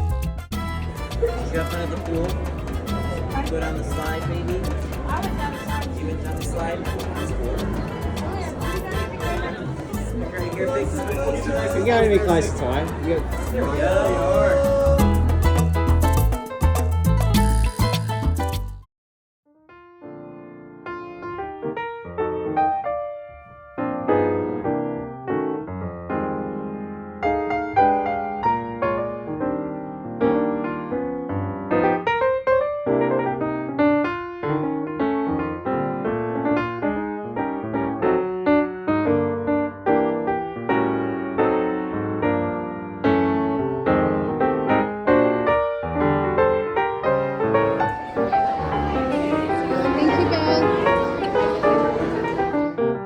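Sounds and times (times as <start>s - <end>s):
piano music: 0.0s - 18.9s, 19.5s - 53.0s.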